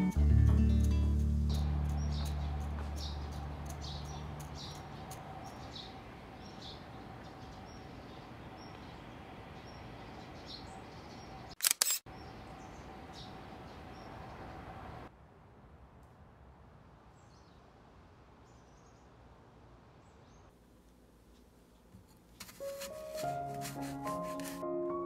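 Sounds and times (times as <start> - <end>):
acoustic guitar music: 0.0 - 2.9
faint outdoor hum: 0.2 - 22.5
small birds chirping: 1.5 - 15.0.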